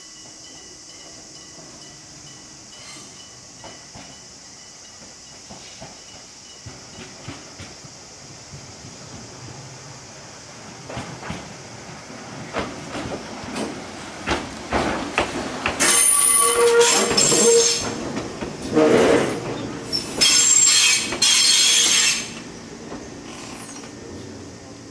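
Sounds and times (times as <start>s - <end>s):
train wheels squealing: 0.0s - 7.6s, 15.8s - 22.5s, 23.2s - 24.2s
train wheels clicking over joints: 0.5s - 9.6s, 10.6s - 24.2s.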